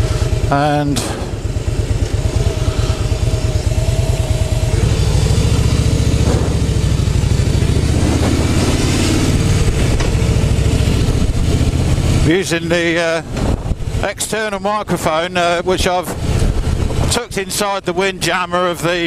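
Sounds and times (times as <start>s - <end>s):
motorcycle engine running: 0.0s - 19.0s
wind rushing over microphone: 13.0s - 14.2s.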